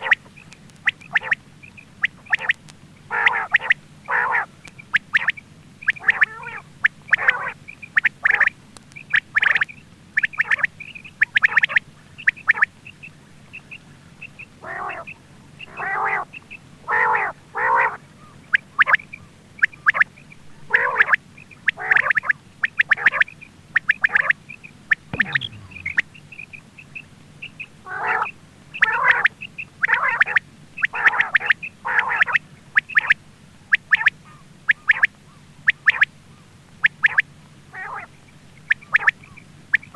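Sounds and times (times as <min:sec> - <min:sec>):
quail calling: 0:00.8 - 0:24.4, 0:27.4 - 0:33.2
high chirps: 0:25.2 - 0:26.1.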